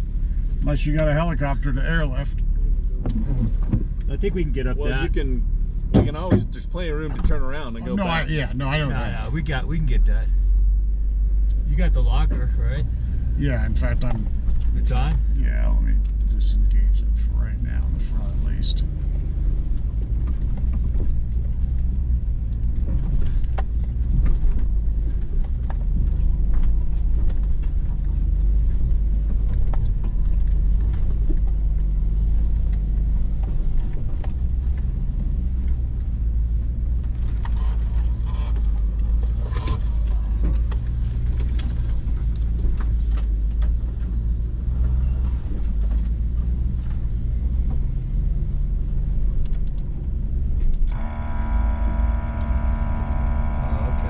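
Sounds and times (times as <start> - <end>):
engine idling: 50.2 - 54.0.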